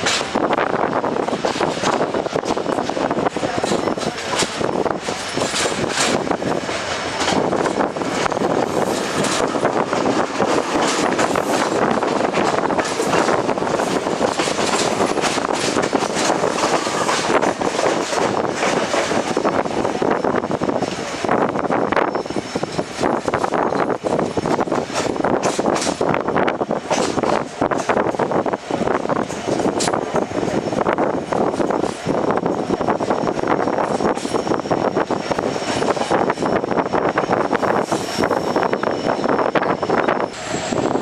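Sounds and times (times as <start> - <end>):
passenger train rumbling: 0.0 - 41.0
wheels clicking and rattling on rails: 0.0 - 41.0.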